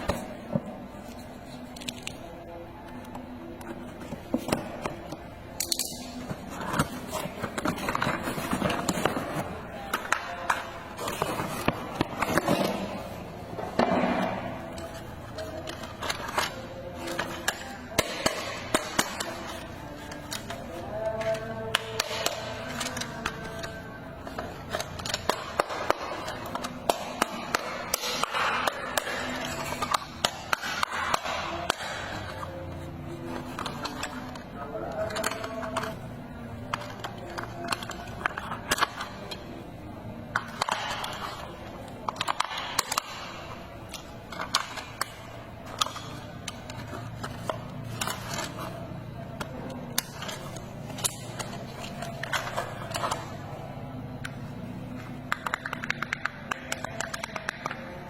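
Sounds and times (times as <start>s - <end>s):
plastic toy parts clicking: 55.3s - 57.9s.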